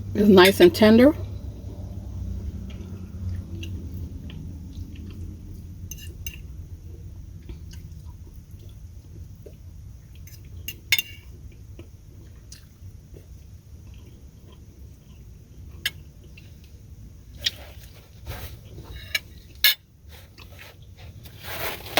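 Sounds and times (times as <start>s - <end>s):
steady low rumble: 0.0s - 20.4s.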